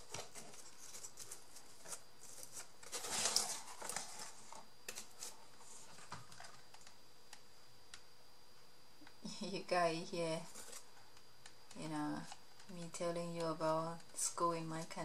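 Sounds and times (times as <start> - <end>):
paper rustling: 0.0 - 6.9, 10.5 - 10.9.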